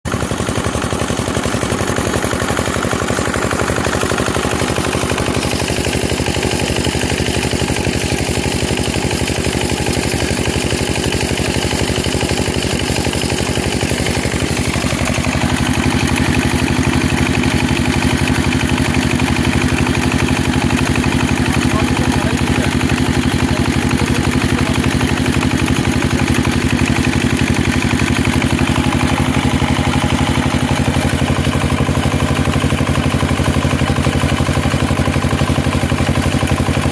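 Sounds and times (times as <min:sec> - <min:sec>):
small engine running: 0:00.1 - 0:36.9.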